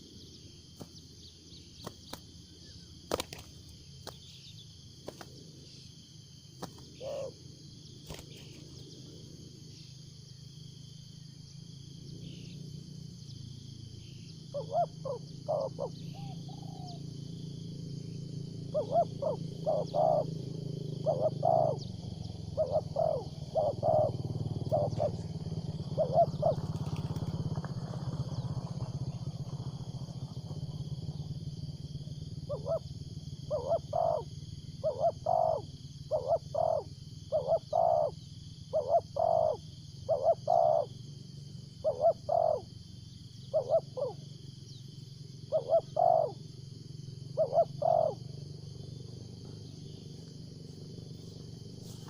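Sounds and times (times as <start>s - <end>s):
dove cooing: 6.6s - 8.9s, 14.2s - 17.1s, 18.6s - 29.6s, 32.4s - 41.0s, 41.7s - 42.8s, 43.5s - 44.8s, 45.4s - 46.5s, 47.2s - 52.0s.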